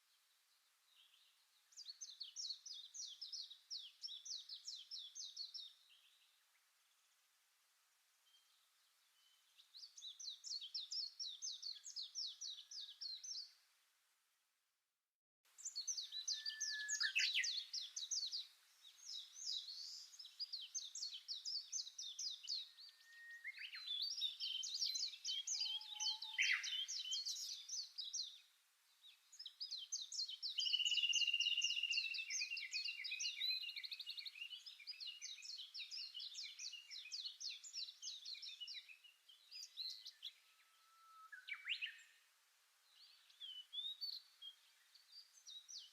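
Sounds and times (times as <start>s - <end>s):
songbirds trilling: 15.6s - 28.5s, 29.1s - 38.9s.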